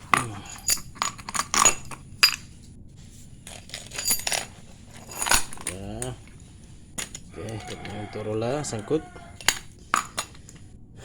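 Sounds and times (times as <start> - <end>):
nuts and screws clinking: 0.0 - 10.7.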